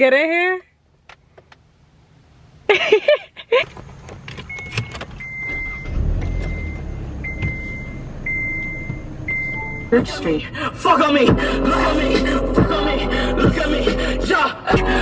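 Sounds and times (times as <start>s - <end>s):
low engine rumble: 0.7s - 15.0s
clicks and knocks in a car: 3.6s - 5.4s
car warning chime: 4.4s - 10.5s.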